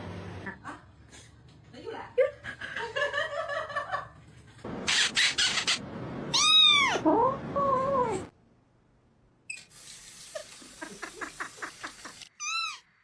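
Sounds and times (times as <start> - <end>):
cat meowing: 6.3 - 7.0, 12.4 - 12.9.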